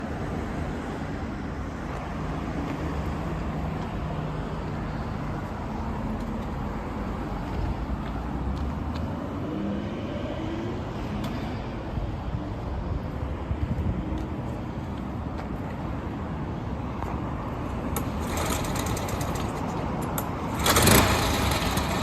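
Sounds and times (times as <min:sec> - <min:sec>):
tiller engine rumbling: 0:17.9 - 0:22.0.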